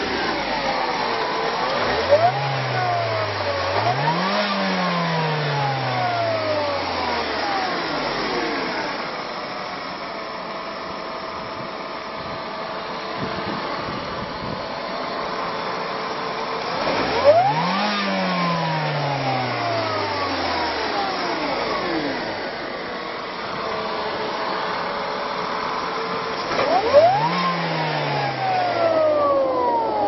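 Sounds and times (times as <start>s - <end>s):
engine revving: 0.0s - 9.2s, 16.7s - 22.8s, 26.3s - 30.0s
car engine idling: 0.0s - 30.0s
supercharger whine: 0.0s - 30.0s.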